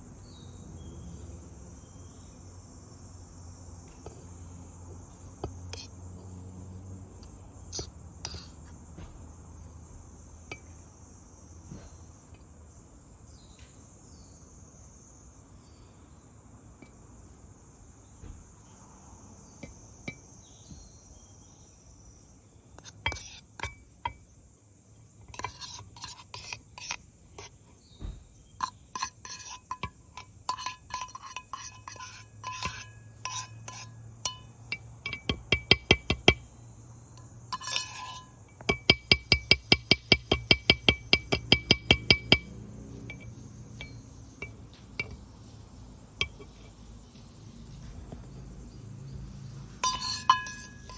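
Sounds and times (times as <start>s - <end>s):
crickets chirping: 0.0s - 50.9s
tableware and utensils clinking: 28.6s - 35.9s, 37.5s - 45.2s, 46.2s - 46.8s, 49.8s - 50.9s.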